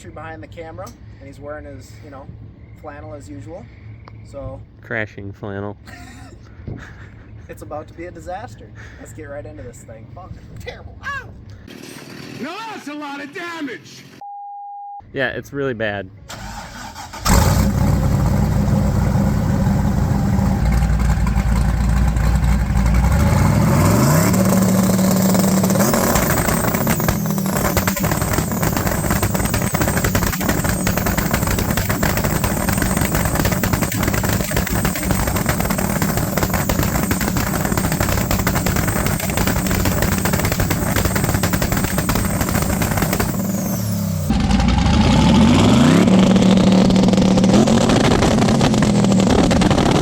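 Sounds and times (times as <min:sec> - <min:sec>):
drag car engine revving: 0:11.7 - 0:12.9, 0:16.3 - 0:50.0
exhaust pops crackling: 0:16.4 - 0:44.9, 0:46.0 - 0:50.0.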